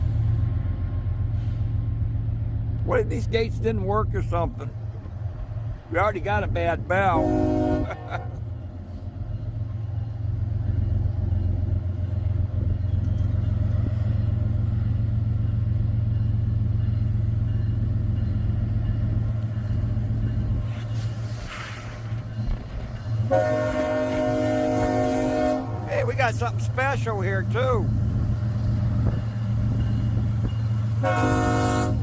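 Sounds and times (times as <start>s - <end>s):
diesel locomotive engine drone: 0.0s - 32.0s
train horn chord: 7.2s - 8.3s, 23.3s - 25.9s, 31.0s - 32.0s.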